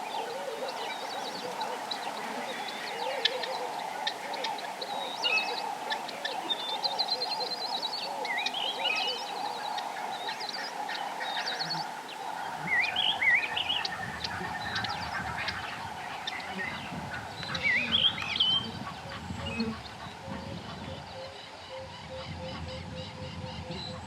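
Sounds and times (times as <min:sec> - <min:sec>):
birds chirping and whistling: 0:12.7 - 0:24.0.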